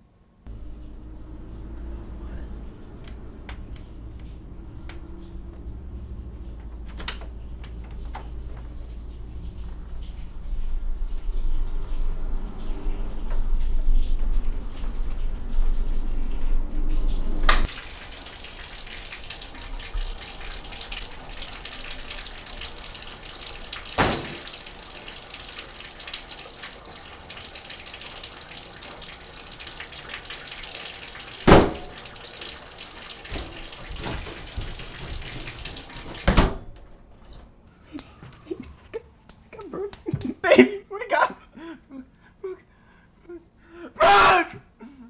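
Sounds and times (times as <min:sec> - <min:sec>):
water running from a tap: 0:02.6 - 0:36.6.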